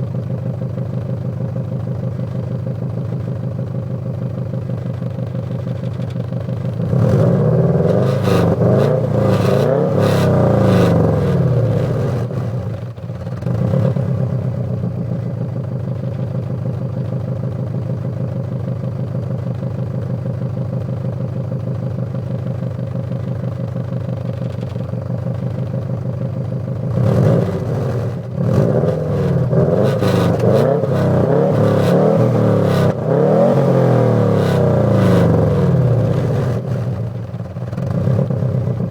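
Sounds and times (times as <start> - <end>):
car engine idling and revving: 0.0 - 38.9.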